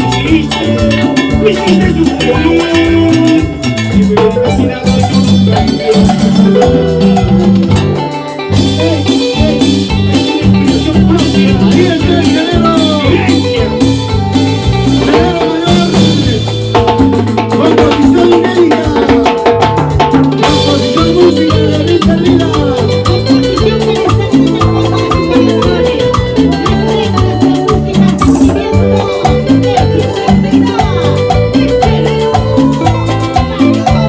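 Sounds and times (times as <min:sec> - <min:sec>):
live band playing dance music: 0:00.0 - 0:34.0.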